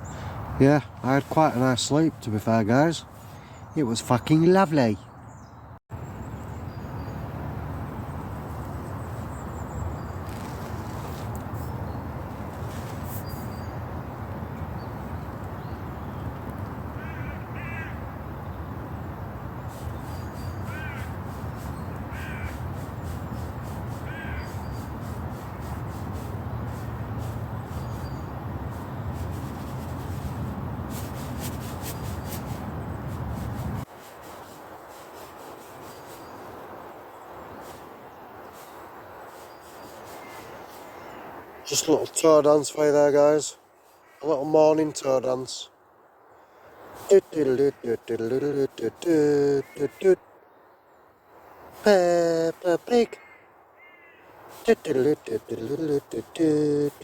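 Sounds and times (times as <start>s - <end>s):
crow cawing: 17.0s - 18.0s, 20.4s - 23.2s, 24.0s - 24.9s, 53.1s - 54.6s.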